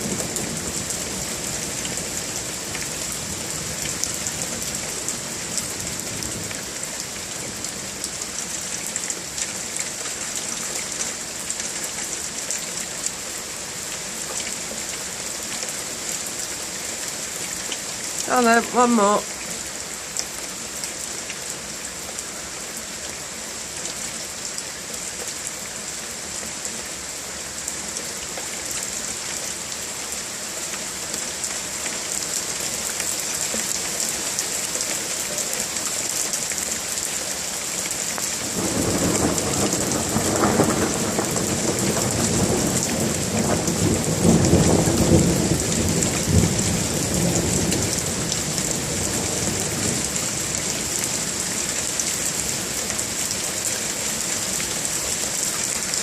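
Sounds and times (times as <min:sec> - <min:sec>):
steady rain hissing: 0:00.0 - 0:56.0.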